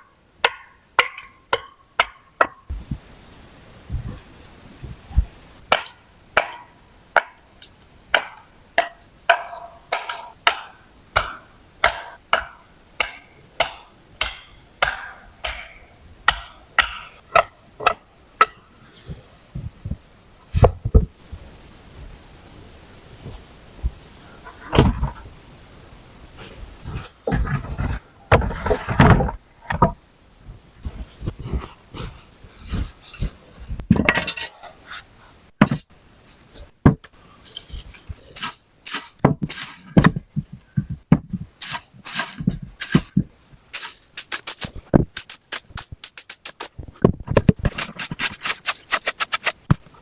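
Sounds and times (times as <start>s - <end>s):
handling rustle: 36.3s - 50.0s
heavy thumps: 38.9s - 49.0s.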